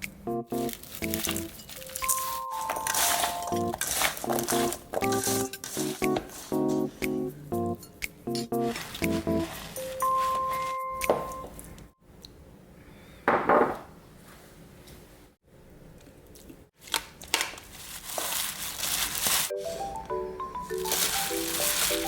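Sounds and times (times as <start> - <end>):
plastic packaging crinkling: 0.5 - 6.8, 16.8 - 19.8, 20.6 - 22.0.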